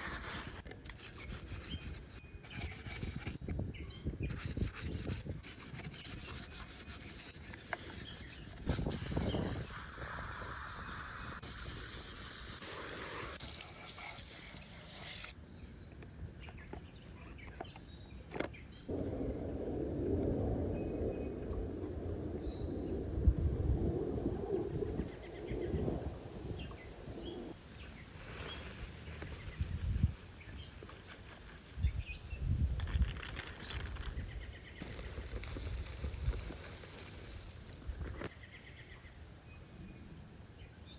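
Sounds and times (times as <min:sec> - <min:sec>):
running water: 0:08.8 - 0:15.4.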